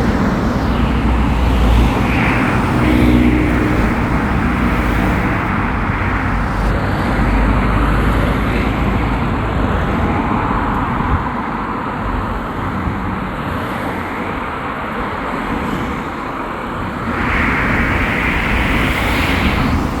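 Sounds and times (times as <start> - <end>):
road traffic passing: 0.0 - 6.8, 17.2 - 20.0.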